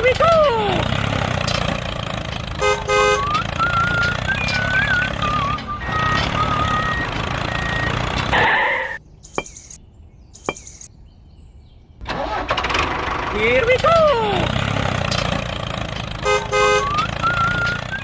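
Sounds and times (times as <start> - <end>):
engine running: 0.0 - 9.0, 12.0 - 18.0
horn toot: 2.6 - 9.0, 16.2 - 18.0
wavering whistle-like melody: 3.0 - 8.0, 16.7 - 18.0.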